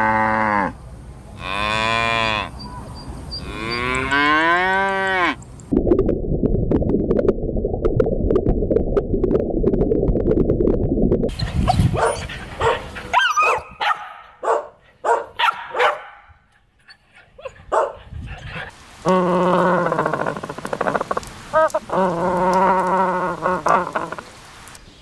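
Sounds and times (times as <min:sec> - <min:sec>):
dog barking and yipping: 0:11.3 - 0:16.3, 0:17.1 - 0:18.7.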